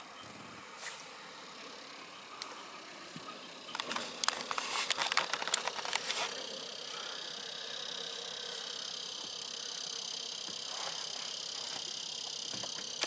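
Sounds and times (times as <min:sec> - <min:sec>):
steady high-pitched hiss: 0:00.0 - 0:13.0
fishing gear clicking and rattling: 0:03.7 - 0:06.8.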